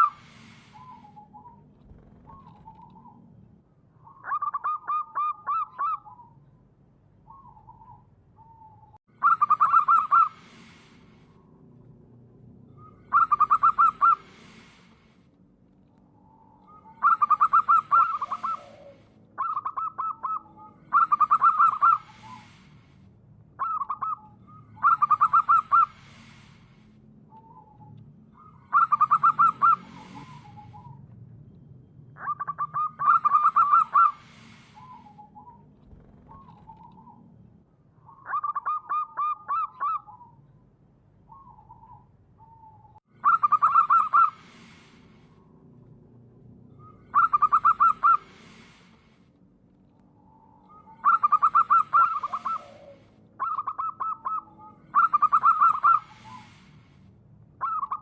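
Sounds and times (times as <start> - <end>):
dove cooing: 7.3 - 10.9, 12.8 - 14.8, 16.6 - 22.6, 23.6 - 26.4, 28.6 - 31.0, 32.2 - 37.3, 41.3 - 45.0, 46.8 - 48.8, 50.7 - 56.8.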